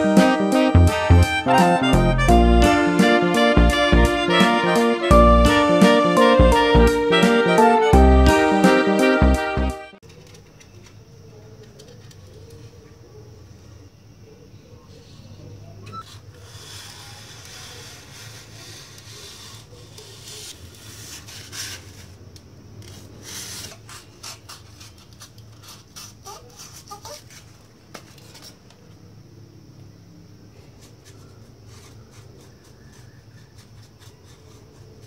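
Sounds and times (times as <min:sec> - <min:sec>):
hand sanding strokes: 0:30.9 - 0:35.0.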